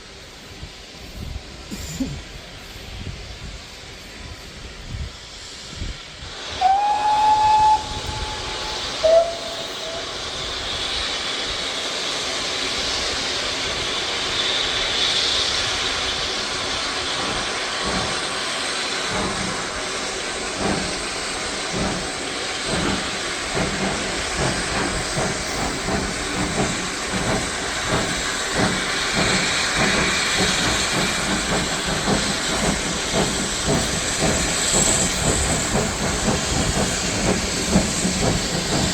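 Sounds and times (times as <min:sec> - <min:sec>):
steam hiss: 0:00.0 - 0:38.9
steam locomotive whistle: 0:06.5 - 0:10.6
locomotive exhaust beats: 0:06.6 - 0:11.0.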